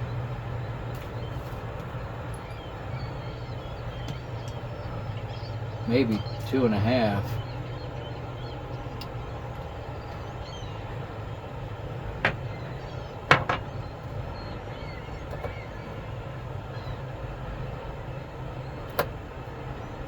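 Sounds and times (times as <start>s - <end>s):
steady low hum: 0.0s - 20.0s
sharp knocks: 13.3s - 13.8s.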